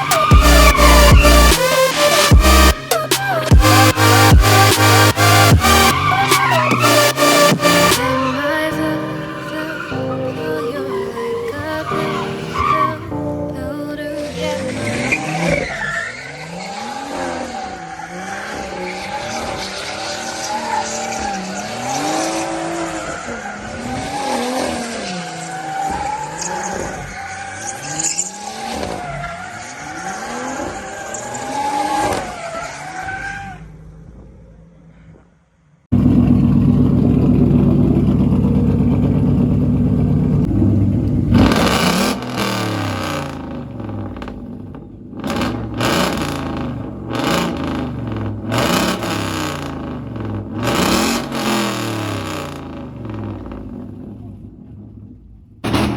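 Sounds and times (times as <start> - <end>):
loud deep engine running: 0.0 - 1.6, 3.4 - 8.1, 35.9 - 44.1
car engine revving: 0.0 - 13.2, 14.2 - 35.0, 35.9 - 55.9
tyres squealing: 0.0 - 13.2.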